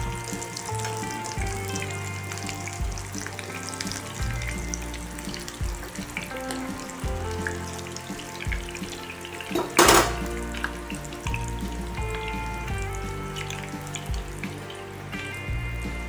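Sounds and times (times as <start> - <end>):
background music with bass: 0.0 - 16.0
food sizzling in hot oil: 0.0 - 16.0
skimmer turning food in pan: 0.0 - 16.0
loud clatter: 9.6 - 10.4.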